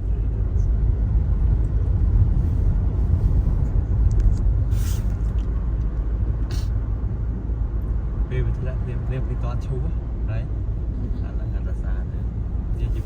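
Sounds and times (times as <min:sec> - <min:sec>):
car engine and tyre rumble: 0:00.0 - 0:13.0
brief hisses: 0:04.7 - 0:05.2.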